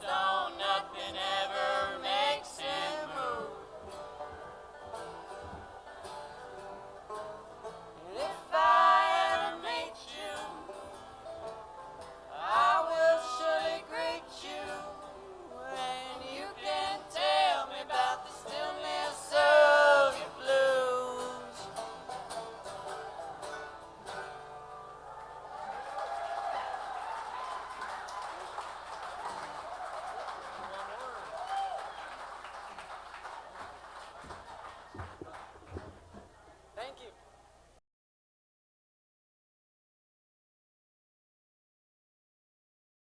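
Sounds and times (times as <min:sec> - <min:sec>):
plucked string accompaniment: 0:00.0 - 0:25.5
man singing: 0:19.4 - 0:21.6.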